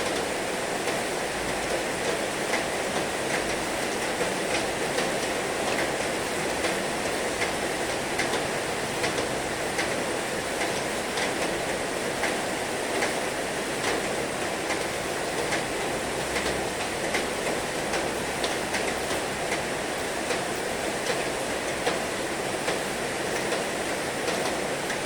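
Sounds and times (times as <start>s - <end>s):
heavy rain: 0.0s - 25.0s
raindrops ticking: 6.5s - 7.6s.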